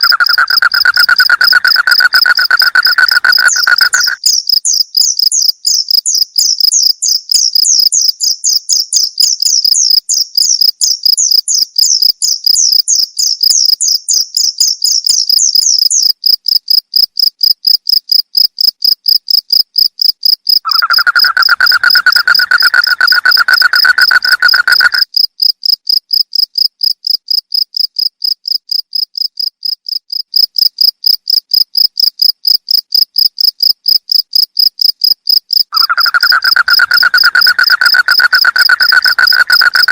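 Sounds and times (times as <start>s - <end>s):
higher chirping call: 0.0s - 4.4s, 20.7s - 25.0s, 35.7s - 39.9s
crickets chirping trill: 0.0s - 39.9s
lower steady insect call: 0.0s - 39.9s.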